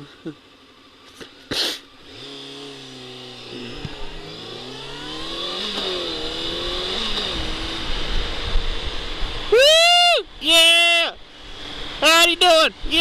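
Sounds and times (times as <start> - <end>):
motorcycle engine accelerating: 1.0 - 9.6.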